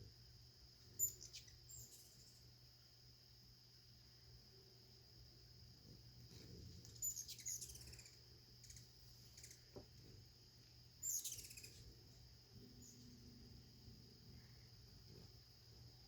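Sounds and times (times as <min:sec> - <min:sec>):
hummingbird squeaky chase calls: 0:01.0 - 0:02.4, 0:06.8 - 0:09.6, 0:11.0 - 0:11.9.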